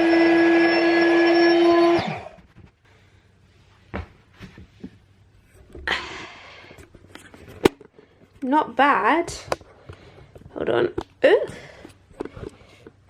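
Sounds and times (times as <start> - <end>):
electric pump whining: 0.0 - 2.5
soft knocks and rustles: 3.8 - 5.8.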